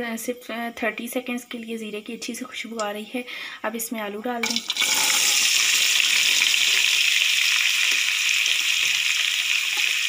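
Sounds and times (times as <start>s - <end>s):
potatoes frying in hot oil: 4.4s - 10.0s.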